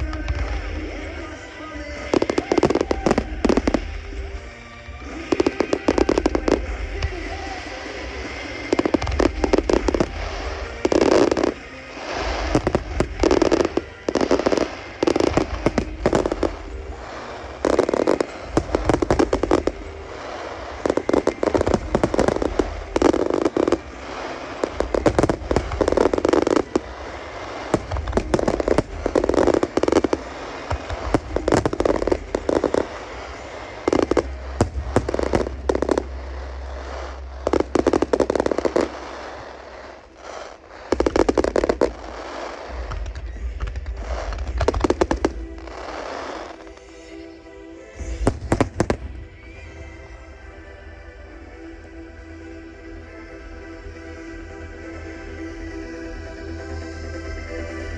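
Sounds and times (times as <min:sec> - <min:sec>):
fireworks bangs and crackles: 0:00.0 - 0:51.9
low rumble: 0:15.3 - 0:46.9.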